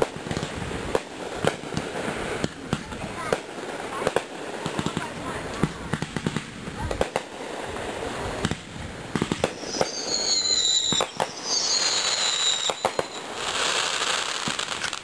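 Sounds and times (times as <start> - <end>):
fireworks bangs and pops: 0.0 - 15.0
hissing crackle: 0.0 - 15.0
firework whistles: 7.9 - 15.0.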